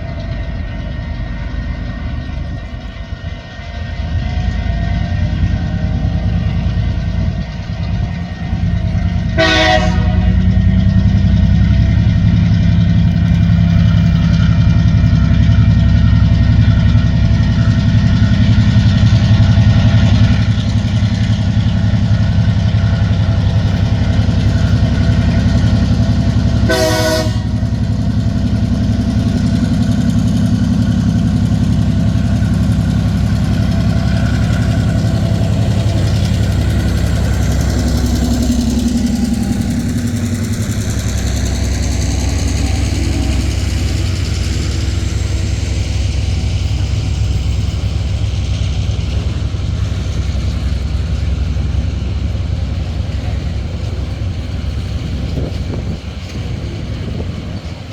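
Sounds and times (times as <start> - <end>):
diesel locomotive engines droning: 0.0 - 57.9
train horn blasts: 9.2 - 10.8, 26.6 - 27.8.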